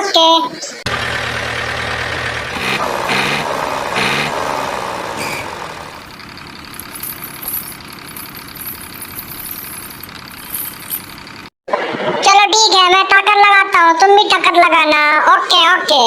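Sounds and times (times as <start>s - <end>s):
vehicle engine revving: 0.9s - 11.5s.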